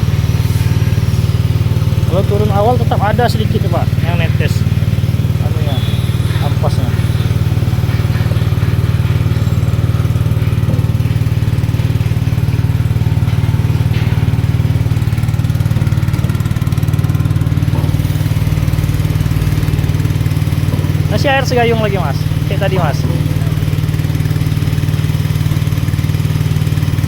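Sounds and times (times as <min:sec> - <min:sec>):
small engine running: 0:00.0 - 0:27.0.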